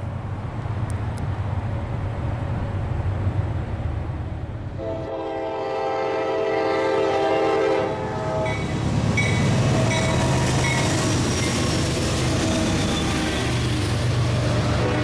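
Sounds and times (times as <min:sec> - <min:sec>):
passing train rumble: 0:00.0 - 0:15.0
locomotive air horn: 0:04.8 - 0:10.9, 0:14.7 - 0:15.0
locomotive engine: 0:07.0 - 0:15.0.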